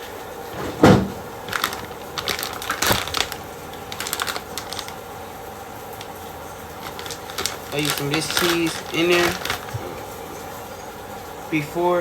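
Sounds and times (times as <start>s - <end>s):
kitchen items knocking: 0.6s - 4.9s, 6.7s - 10.4s
light clicks and rattles: 6.0s - 10.0s.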